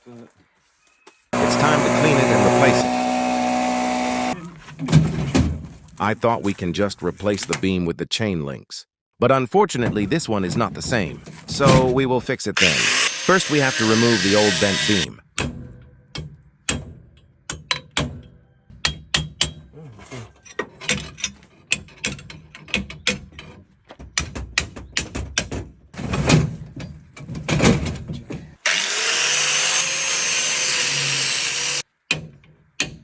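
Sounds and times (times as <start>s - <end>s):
power tool whining: 1.4s - 4.4s, 12.6s - 15.1s, 28.6s - 31.8s.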